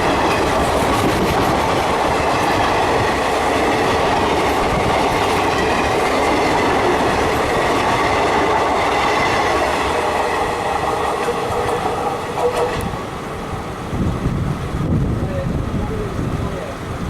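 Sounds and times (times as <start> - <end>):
train wheels clickety-clack: 0.0 - 13.0.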